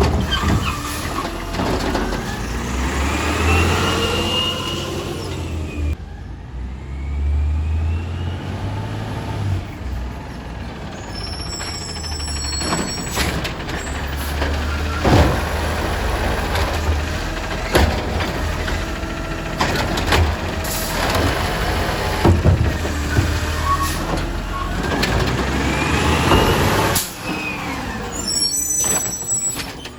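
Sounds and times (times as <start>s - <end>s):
garbage truck engine rumble: 0.0s - 29.9s
sharp knocks and clanks: 12.6s - 27.2s.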